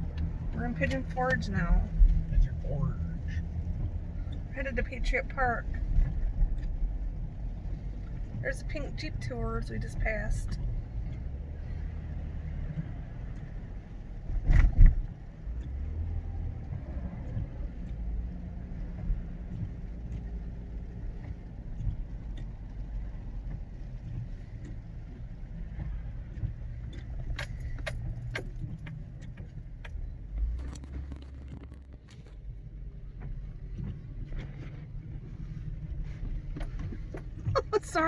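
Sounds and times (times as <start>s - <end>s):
car road noise rumble: 0.0s - 38.0s
sharp rattling clicks: 26.3s - 32.4s.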